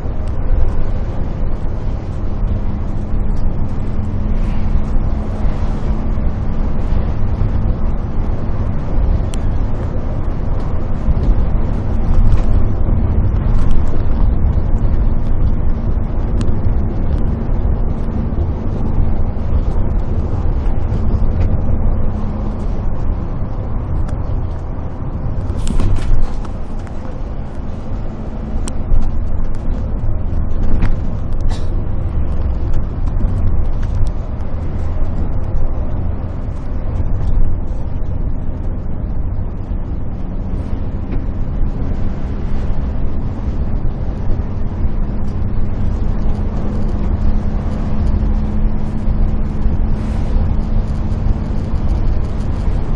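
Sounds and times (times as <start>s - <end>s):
bus engine and road rumble: 0.0s - 52.9s
steady hum: 0.0s - 52.9s.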